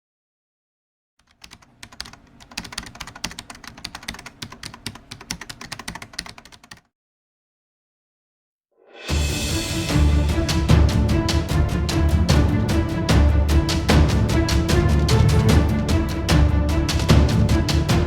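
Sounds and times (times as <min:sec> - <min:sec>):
keyboard typing clicks: 0:01.2 - 0:06.9.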